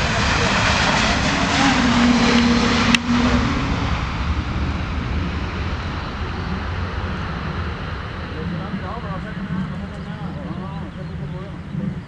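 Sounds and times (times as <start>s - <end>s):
jet engine rush: 0.0s - 12.0s
low hum: 0.0s - 12.0s.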